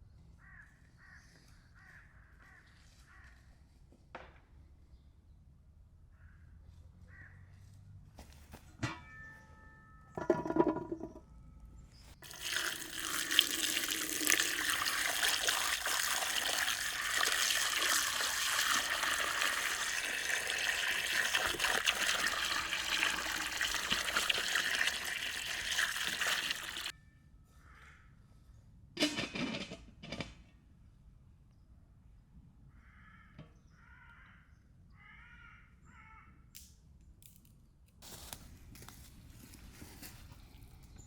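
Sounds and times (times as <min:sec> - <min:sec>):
water pouring: 0:12.2 - 0:26.9.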